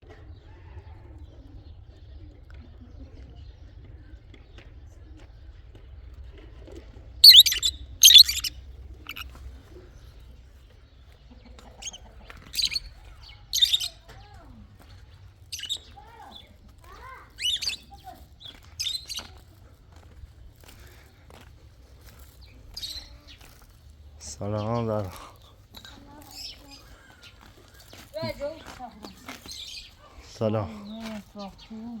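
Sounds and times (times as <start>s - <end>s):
small birds chirping: 7.2s - 8.5s, 9.1s - 9.4s, 10.0s - 19.9s, 20.7s - 32.0s.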